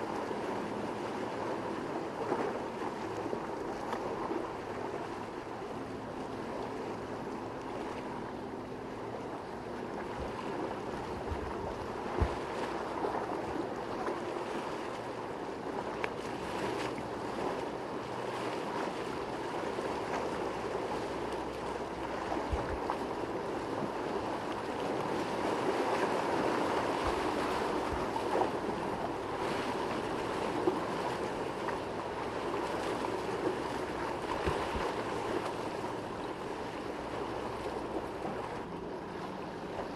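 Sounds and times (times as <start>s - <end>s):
boat engines running: 0.0s - 39.9s
rough water and surf: 0.0s - 39.9s
wind thumps on microphone: 12.1s - 12.5s, 22.5s - 22.8s.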